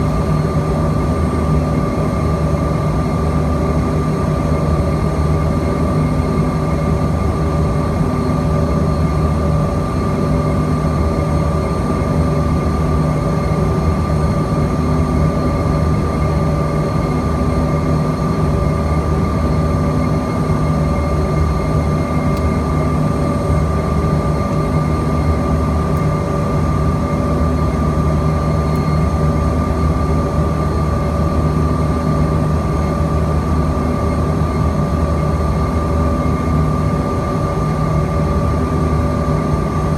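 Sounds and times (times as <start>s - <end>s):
steady low hum: 0.0s - 3.2s, 20.3s - 39.9s
steady high whine: 0.0s - 3.4s, 18.4s - 39.9s
jet engines droning: 0.0s - 39.9s.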